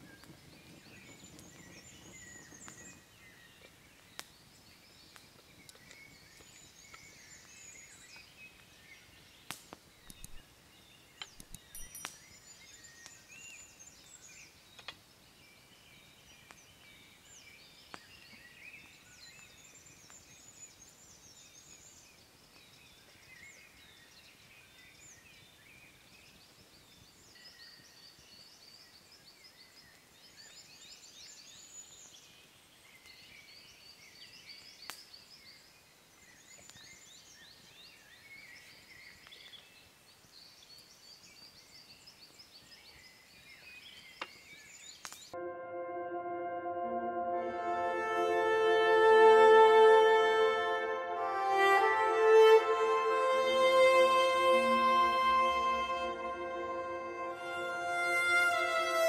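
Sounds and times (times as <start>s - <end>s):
songbirds singing: 0.0s - 45.4s
sharp clicks: 9.5s - 10.4s, 11.2s - 12.2s.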